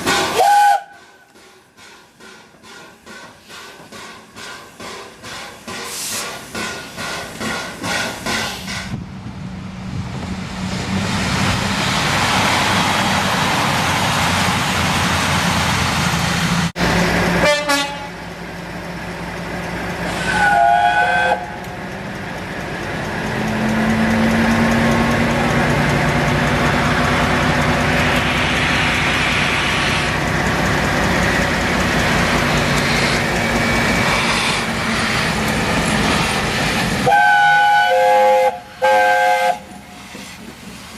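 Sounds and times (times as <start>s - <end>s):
steam locomotive exhaust beats: 0.0s - 40.9s
train rushing noise: 0.0s - 40.9s
two-note train horn: 17.4s - 18.2s, 20.2s - 21.6s, 37.0s - 39.7s.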